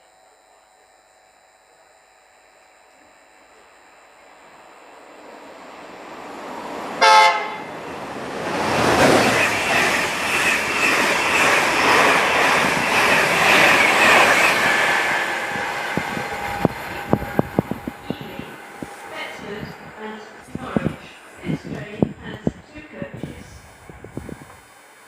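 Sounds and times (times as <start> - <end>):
train wheel and air rush: 5.0 - 25.0
train horn blast: 7.0 - 7.7.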